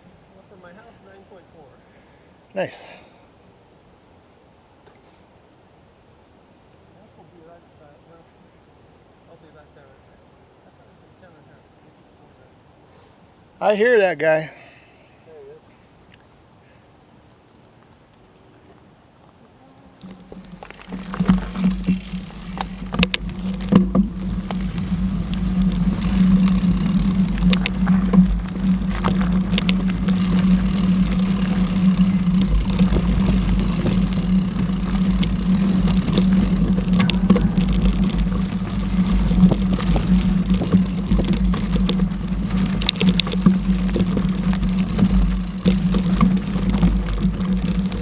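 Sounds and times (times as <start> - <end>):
mountain bike riding on trail: 12.9 - 48.0
bike knocks and rattles: 20.0 - 48.0.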